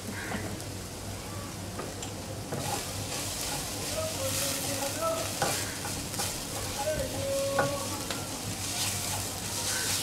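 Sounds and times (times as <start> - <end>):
onions sizzling in oil: 0.0 - 10.0
spatula scraping and knocking pan: 2.5 - 10.0.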